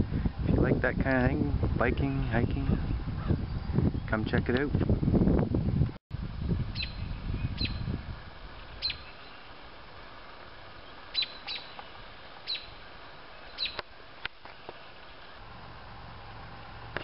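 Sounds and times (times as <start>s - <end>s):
bird chip calls: 6.8s - 7.8s, 8.7s - 9.6s, 10.8s - 12.8s, 13.4s - 13.8s.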